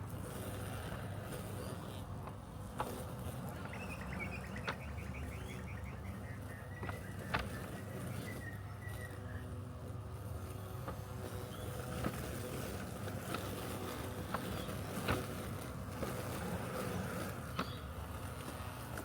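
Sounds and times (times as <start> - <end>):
robotic lawn mower humming: 0.0 - 19.0
bird trilling: 3.6 - 9.5.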